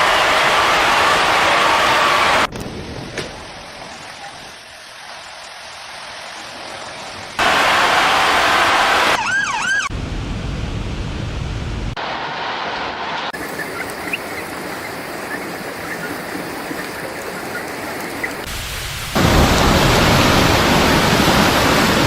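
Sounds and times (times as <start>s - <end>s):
rushing water: 0.0s - 9.2s, 13.3s - 22.0s
fast-wailing siren: 8.1s - 9.9s.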